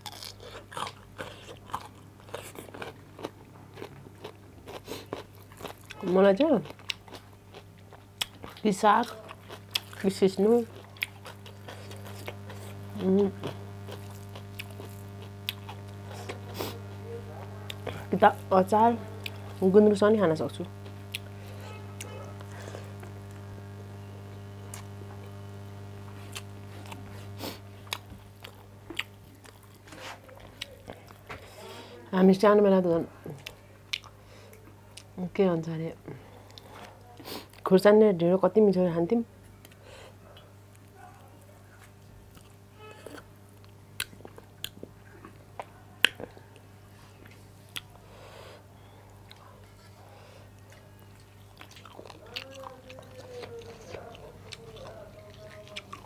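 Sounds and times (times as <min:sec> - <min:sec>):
person chewing crunchy food: 0:00.0 - 0:31.3, 0:50.6 - 0:56.0
low hum: 0:11.0 - 0:28.9.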